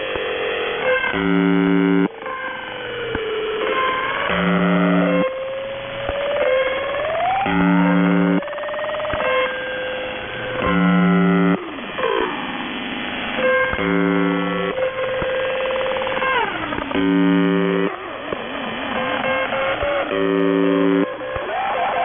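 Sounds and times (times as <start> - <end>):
harsh radio buzz: 0.0 - 5.4, 6.3 - 22.0
electronic tones sliding in pitch: 3.7 - 9.8, 13.4 - 22.0.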